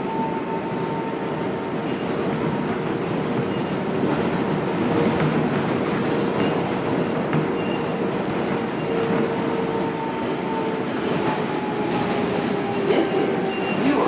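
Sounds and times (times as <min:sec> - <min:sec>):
subway train rumble: 0:00.0 - 0:14.0.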